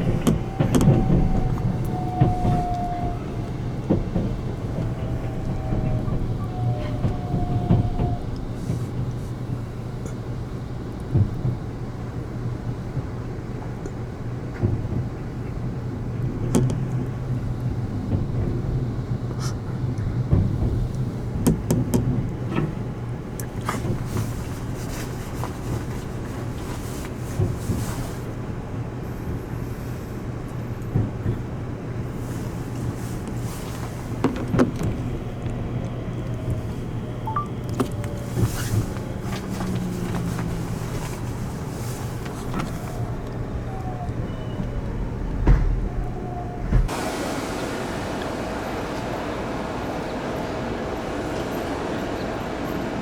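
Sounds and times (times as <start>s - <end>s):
station noise: 0.0s - 10.1s, 32.4s - 45.6s, 46.7s - 53.0s
train rumbling: 0.0s - 53.0s.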